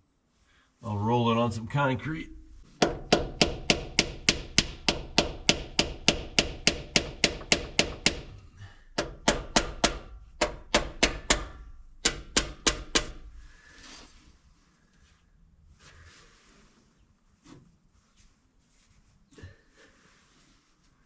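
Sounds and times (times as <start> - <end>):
rapid metal-on-metal tapping: 2.3 - 8.4, 9.0 - 13.2.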